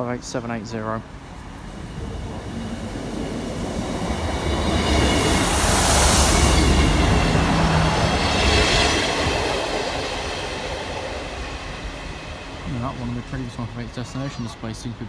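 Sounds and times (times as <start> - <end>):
diesel train passing: 0.0 - 15.0
wheels on rail: 1.0 - 15.0.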